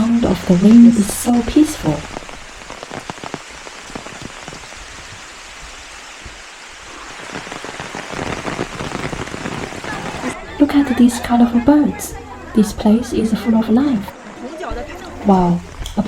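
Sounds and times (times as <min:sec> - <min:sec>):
rain pattering: 0:00.0 - 0:16.0.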